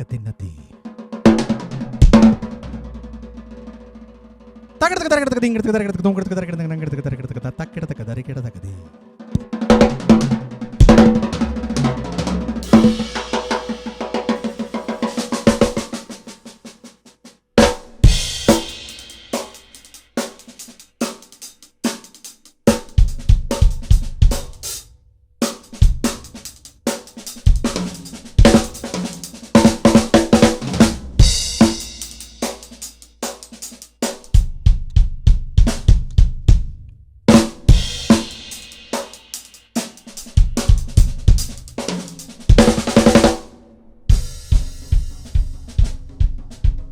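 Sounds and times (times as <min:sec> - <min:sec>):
fast drum beat: 0:00.0 - 0:07.3, 0:09.4 - 0:46.9
deep bass thumps: 0:01.3 - 0:03.4, 0:34.4 - 0:36.8.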